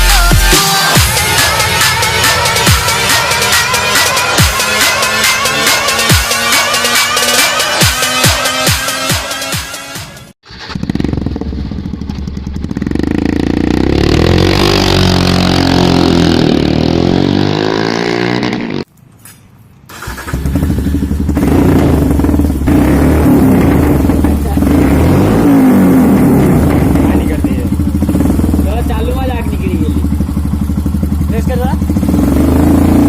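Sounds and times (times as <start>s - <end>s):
motorcycle exhaust note: 10.5s - 18.9s, 20.0s - 33.0s.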